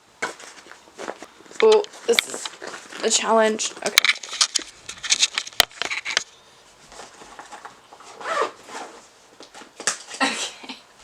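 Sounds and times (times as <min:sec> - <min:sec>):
handling rustling and rubbing: 0:00.1 - 0:10.2
zip-like rasps: 0:08.1 - 0:09.0.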